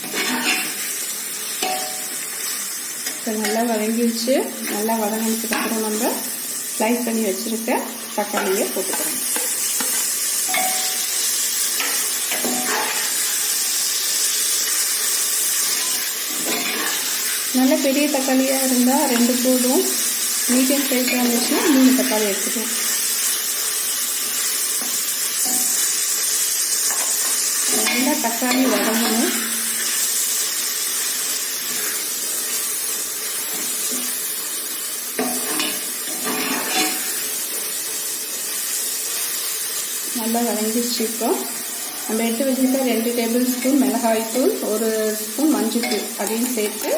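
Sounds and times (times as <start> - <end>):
spoon scraping pan: 0.0 - 1.0, 8.0 - 13.6, 15.4 - 17.5, 26.8 - 30.0, 35.2 - 37.2, 45.4 - 46.9
masala sizzling in hot oil: 0.0 - 46.9
spoon scraping pot: 8.4 - 10.8, 15.7 - 17.2.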